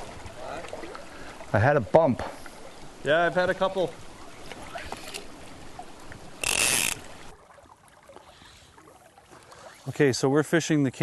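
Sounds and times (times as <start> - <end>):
river water hissing: 2.3 - 7.4
fly reel buzzing: 6.4 - 7.2.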